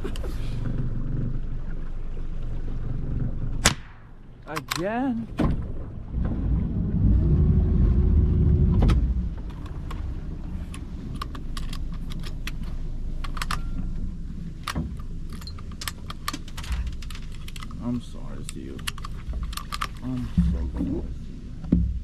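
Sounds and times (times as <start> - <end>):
boat engine revving and idling: 0.0 - 22.0
metallic clicks and rattles: 4.4 - 5.2, 9.4 - 14.0, 14.6 - 20.4.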